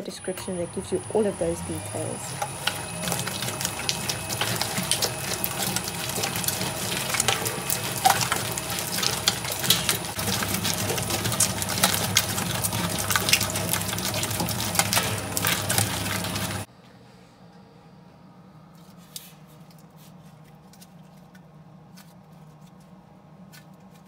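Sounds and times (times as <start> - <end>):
mixer motor hum: 0.0 - 16.7.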